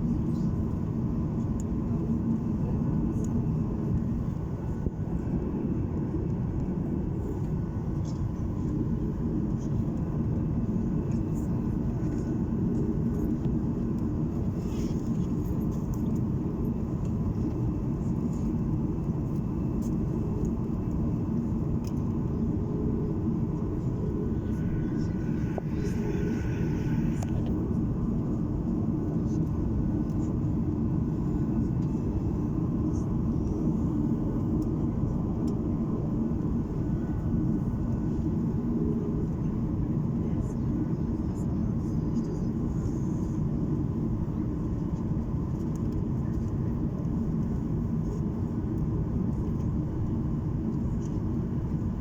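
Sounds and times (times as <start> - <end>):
jet engine and airflow rumble: 0.0 - 52.0.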